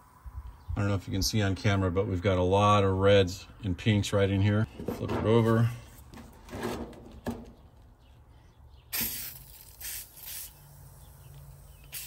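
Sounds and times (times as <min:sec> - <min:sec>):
aerosol spray hissing: 0:09.0 - 0:12.0.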